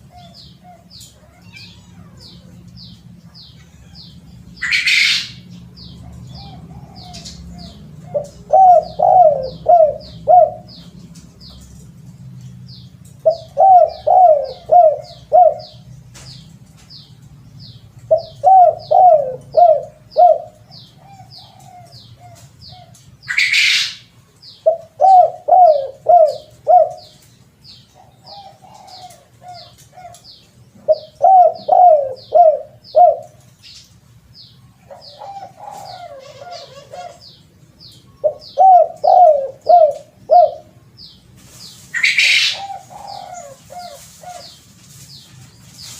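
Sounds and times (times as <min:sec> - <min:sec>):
dove cooing: 0:00.0 - 0:02.6, 0:03.8 - 0:10.9, 0:13.2 - 0:15.9, 0:18.1 - 0:27.3, 0:27.9 - 0:33.5, 0:34.8 - 0:37.4, 0:38.2 - 0:40.8, 0:42.0 - 0:44.6.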